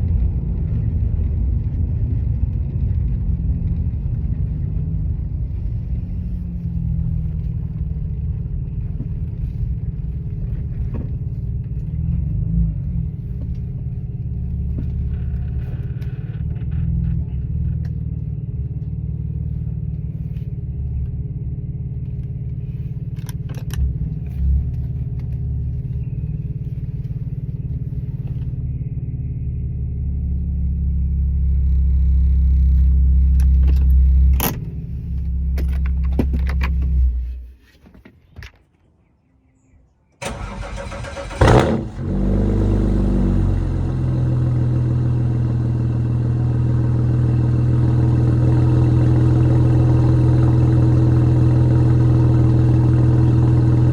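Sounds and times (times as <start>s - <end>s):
car engine idling: 0.0s - 37.5s, 40.2s - 53.9s
engine starting with loud burst: 40.2s - 43.7s.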